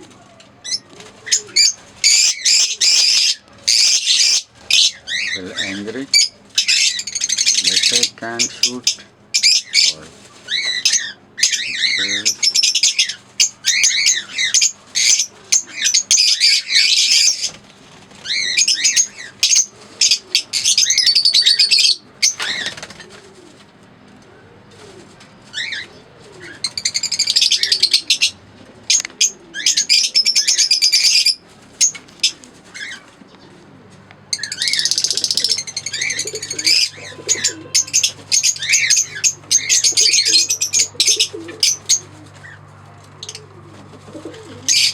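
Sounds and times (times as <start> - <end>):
lovebirds chirping shrilly: 0.6 - 23.2, 24.9 - 33.6, 34.2 - 44.9
soft low repeated call: 36.6 - 38.3.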